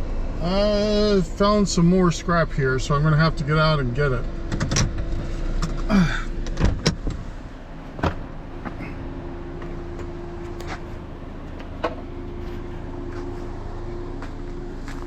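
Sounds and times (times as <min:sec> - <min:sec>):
vehicle engine idling: 0:00.0 - 0:15.0
car door opening and shutting: 0:04.4 - 0:09.0.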